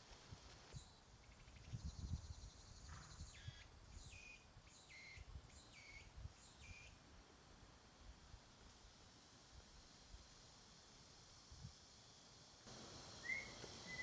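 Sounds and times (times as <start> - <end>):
wind rumble on microphone: 1.6 - 3.3
faint high animal chirps: 13.2 - 14.0.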